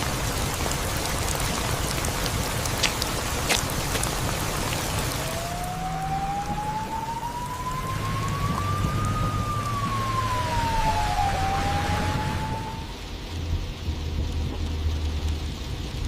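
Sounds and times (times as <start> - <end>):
steady rain: 0.0 - 16.0
low hum: 4.8 - 16.0
whistle-like rising tone: 5.2 - 13.0.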